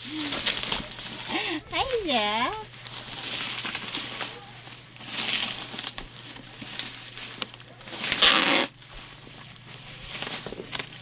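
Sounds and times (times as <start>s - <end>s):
packaging ripping: 0.0s - 1.4s, 2.8s - 11.0s.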